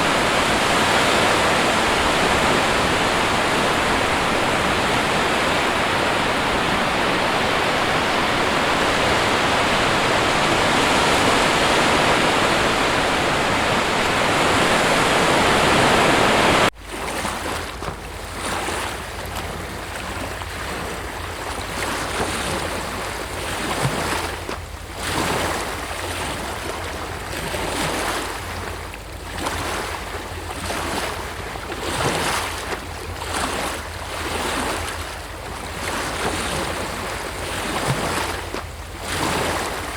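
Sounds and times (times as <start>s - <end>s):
dense rush of water: 0.0s - 39.9s
ocean surf washing: 0.0s - 39.9s
wind: 0.0s - 39.9s.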